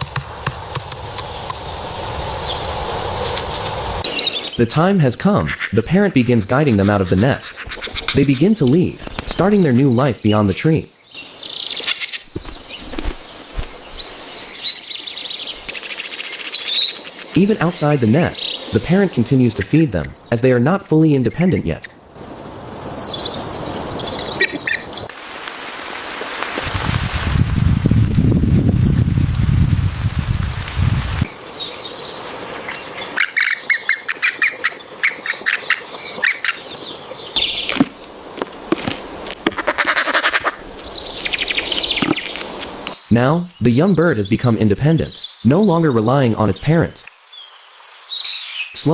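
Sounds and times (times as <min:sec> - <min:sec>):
birds chirping: 0:00.0 - 0:25.1, 0:31.3 - 0:48.9
young woodpeckers calling: 0:05.4 - 0:20.4, 0:22.8 - 0:25.1, 0:31.3 - 0:44.2
soft low thumps: 0:12.3 - 0:14.1.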